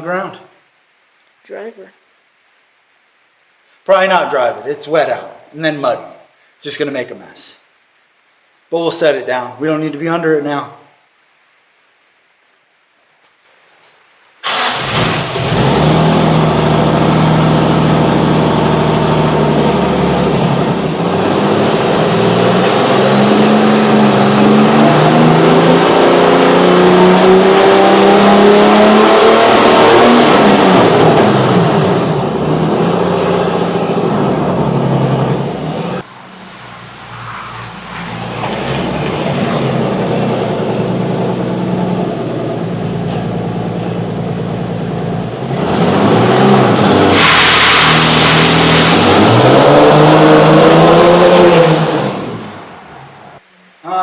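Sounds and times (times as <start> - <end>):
car engine revving: 14.4 - 53.4.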